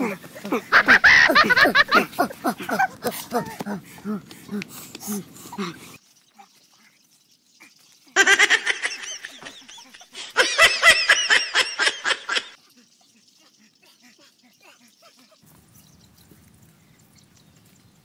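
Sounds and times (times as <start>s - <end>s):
high-pitched giggling: 0.0s - 6.0s, 7.6s - 15.4s.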